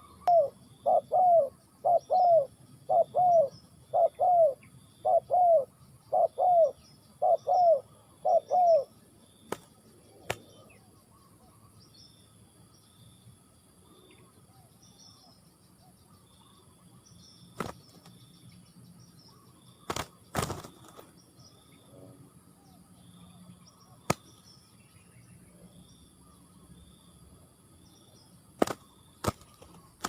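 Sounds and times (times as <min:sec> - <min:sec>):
outdoor background noise: 0:00.0 - 0:30.0.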